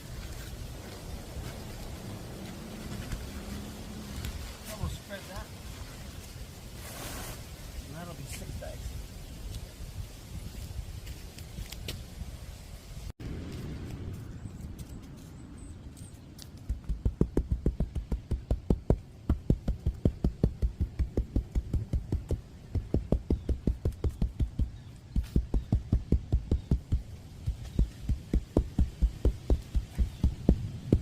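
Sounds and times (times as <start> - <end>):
dull thumps of tamping asphalt: 16.4 - 31.0.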